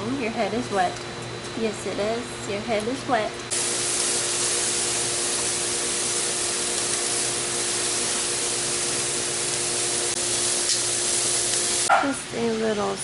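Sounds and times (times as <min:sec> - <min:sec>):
steady rain falling: 0:03.5 - 0:11.9.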